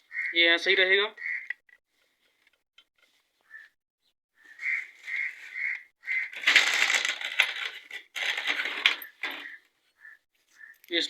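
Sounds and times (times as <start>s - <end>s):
metal engine parts clinking: 6.4s - 9.6s.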